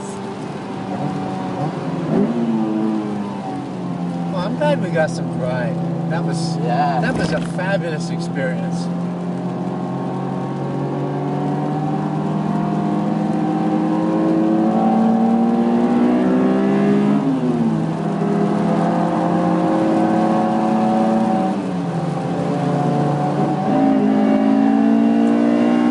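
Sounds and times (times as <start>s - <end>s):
car engine revving: 0.0s - 25.9s.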